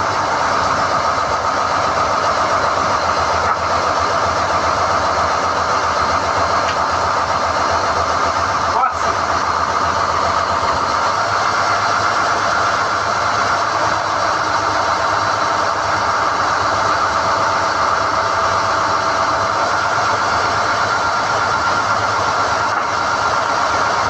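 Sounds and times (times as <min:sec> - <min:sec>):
drilling rig running: 0:00.0 - 0:24.0.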